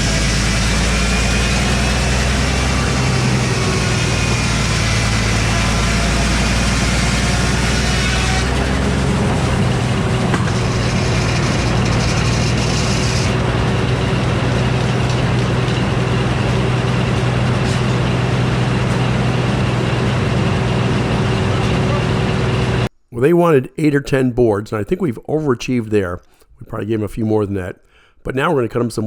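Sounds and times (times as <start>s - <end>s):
saw blade cutting with high hiss: 0.0s - 13.4s
sawmill running: 0.0s - 22.9s.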